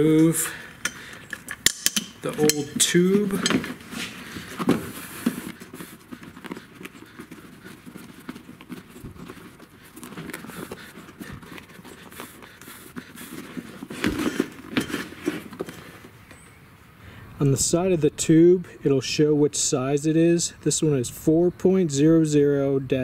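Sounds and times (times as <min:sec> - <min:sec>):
rubber rubbing and squeaking: 0:02.2 - 0:16.2.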